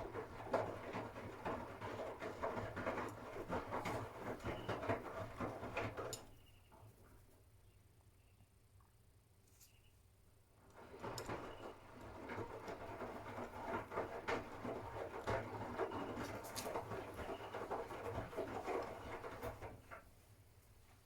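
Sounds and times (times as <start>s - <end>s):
washing machine drum tumbling laundry: 0.0s - 6.2s, 10.7s - 20.1s.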